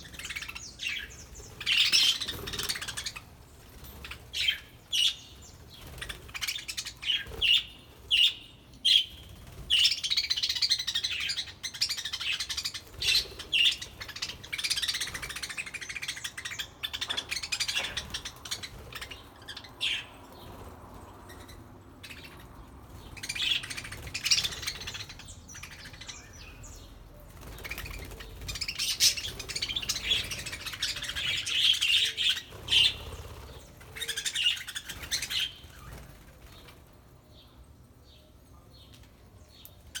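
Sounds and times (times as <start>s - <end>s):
budgerigars chirping and chattering: 0.0s - 3.3s, 9.7s - 20.5s, 21.3s - 36.0s.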